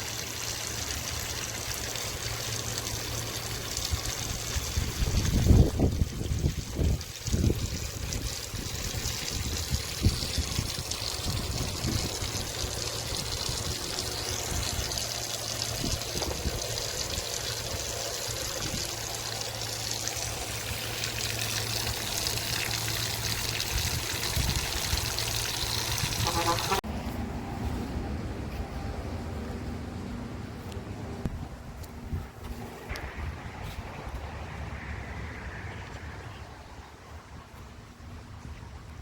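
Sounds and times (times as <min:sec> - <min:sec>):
water trickling over terraces: 0:00.0 - 0:26.8.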